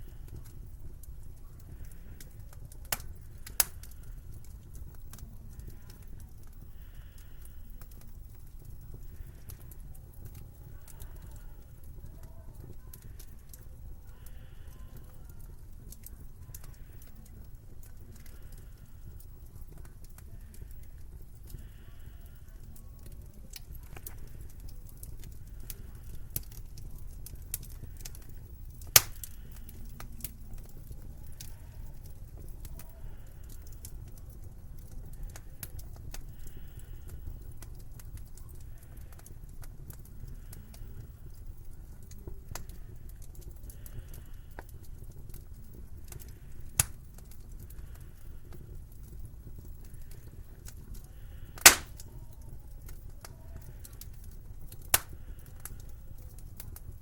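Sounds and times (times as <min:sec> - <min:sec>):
fire crackling: 0:00.0 - 0:57.0
loud pop of fire: 0:28.9 - 0:29.3, 0:51.6 - 0:52.0, 0:54.9 - 0:55.2.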